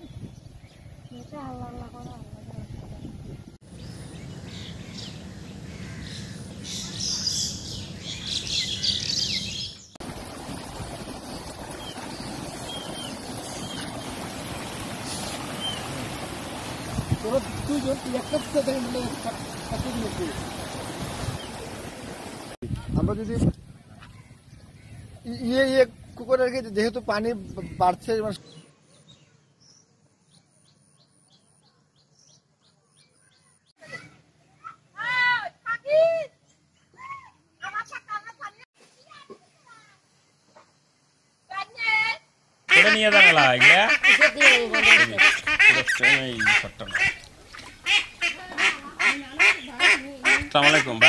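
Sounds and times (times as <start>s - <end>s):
birds chirping: 0.0s - 22.6s, 42.7s - 51.0s
rustle: 3.7s - 25.7s, 38.8s - 42.4s, 43.0s - 51.0s.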